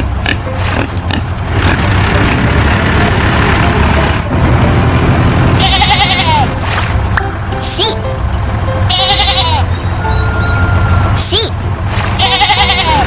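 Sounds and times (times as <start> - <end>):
farm animal bleating: 5.6 - 6.6, 8.8 - 13.0
short gliding tone: 9.6 - 11.3.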